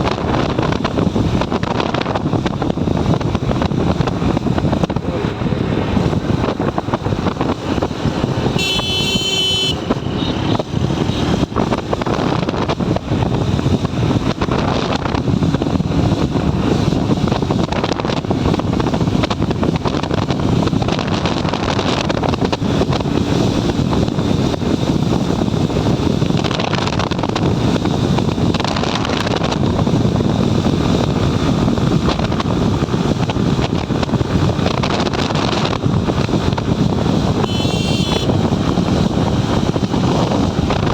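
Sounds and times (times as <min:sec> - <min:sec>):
motorcycle engine and road noise: 0:00.0 - 0:40.9
wind buffeting microphone: 0:00.0 - 0:40.9
vehicle horn: 0:08.5 - 0:11.4, 0:37.4 - 0:38.4.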